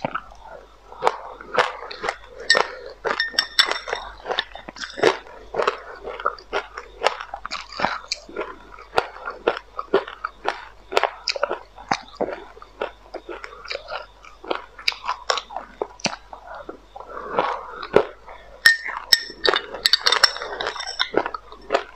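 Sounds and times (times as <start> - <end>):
chewing crunchy seeds: 0.0 - 21.9.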